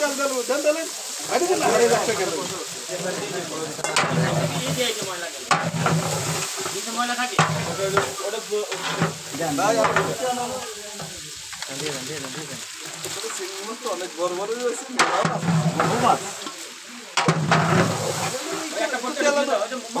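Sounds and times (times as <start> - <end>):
prawns sizzling in hot oil: 0.0 - 20.0
metal spatula scraping pot: 2.9 - 11.2, 15.0 - 16.6, 17.2 - 18.4.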